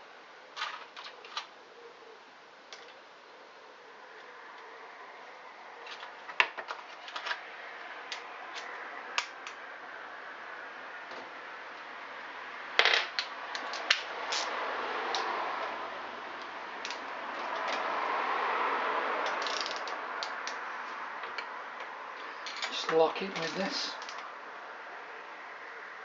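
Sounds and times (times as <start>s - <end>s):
metal hand tools clinking: 22.4s - 24.2s.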